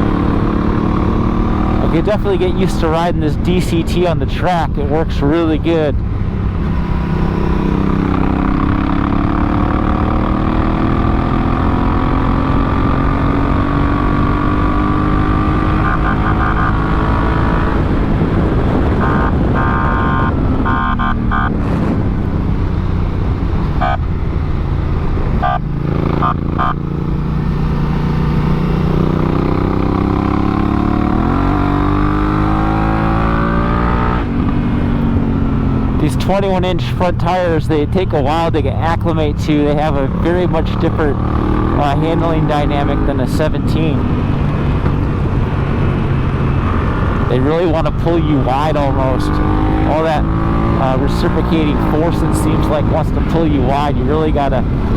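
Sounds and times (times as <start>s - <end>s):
motorcycle engine running: 0.0s - 54.9s
short high-pitched tones: 6.6s - 8.3s.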